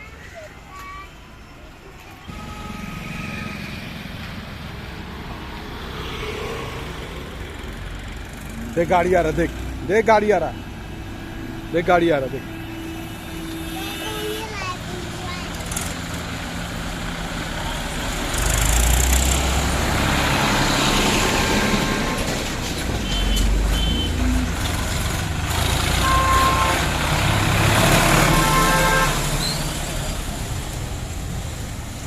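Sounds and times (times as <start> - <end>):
vehicles passing: 0.0 - 32.0
car horn honks: 23.0 - 24.2, 26.0 - 27.0, 28.3 - 29.4.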